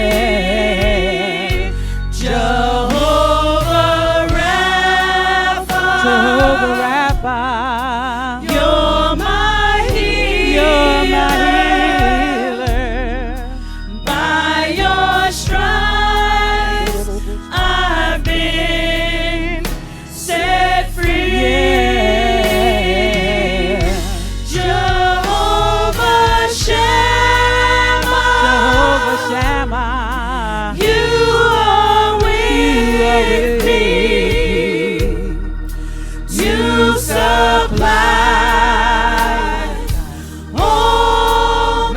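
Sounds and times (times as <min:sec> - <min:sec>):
choir singing: 0:00.0 - 0:29.8, 0:30.8 - 0:41.9
band playing: 0:00.0 - 0:29.9, 0:30.9 - 0:41.9
bass: 0:00.0 - 0:41.9
drum hits: 0:02.9 - 0:05.1, 0:05.7 - 0:07.4, 0:36.4 - 0:41.9.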